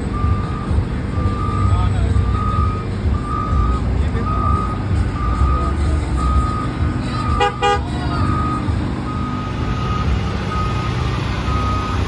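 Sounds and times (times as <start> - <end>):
low rumble of engines: 0.0 - 12.0
reversing alarm beeping: 0.1 - 12.0
horn toots: 6.5 - 8.6.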